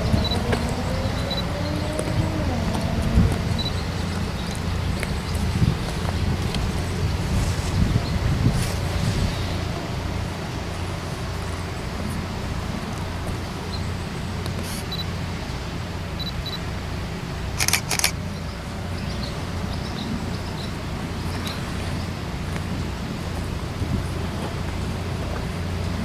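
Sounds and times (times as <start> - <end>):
steady low rumble: 0.0 - 26.0
sharp clicks: 17.6 - 18.2.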